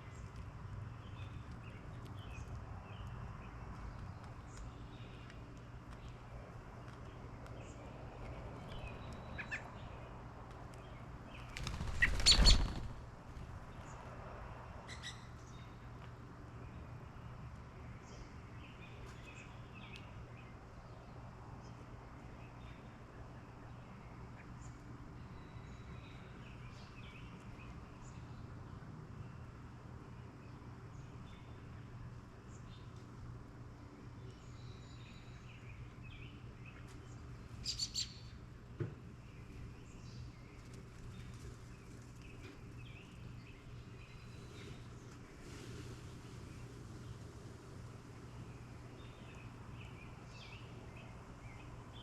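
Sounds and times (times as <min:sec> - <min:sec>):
bird wings flapping: 0:11.4 - 0:13.8
faint bird chirps: 0:11.6 - 0:12.9, 0:37.6 - 0:38.3.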